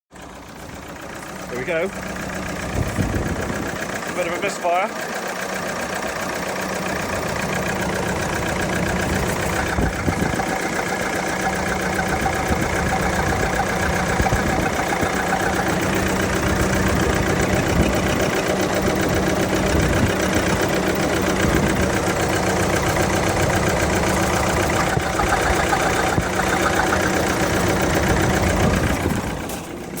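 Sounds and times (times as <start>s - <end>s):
diesel engine idling with misfire: 0.1s - 30.0s.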